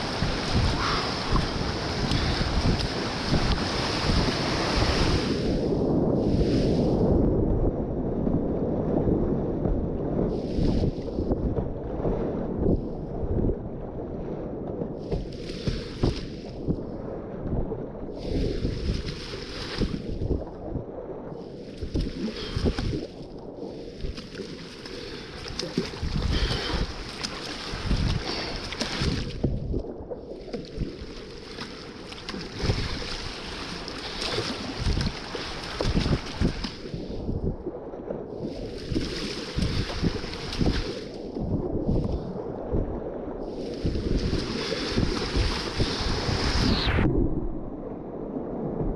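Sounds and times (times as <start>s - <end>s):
whitewater river rushing: 0.0s - 5.1s
water splashing: 0.0s - 6.8s, 15.1s - 16.6s, 18.2s - 20.7s, 21.4s - 42.4s, 43.5s - 47.2s
wind buffeting microphone: 0.0s - 48.9s.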